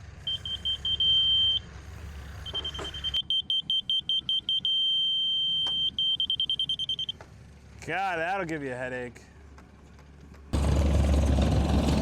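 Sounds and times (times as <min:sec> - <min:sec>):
high-pitched receiver beeps: 0:02.5 - 0:07.1.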